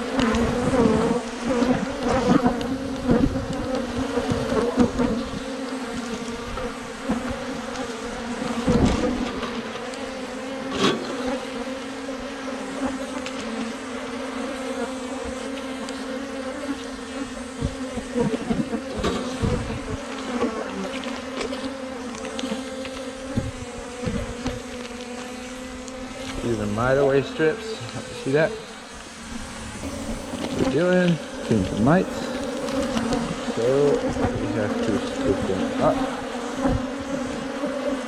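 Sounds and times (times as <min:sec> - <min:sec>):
bees buzzing: 0:27.4 - 0:38.0.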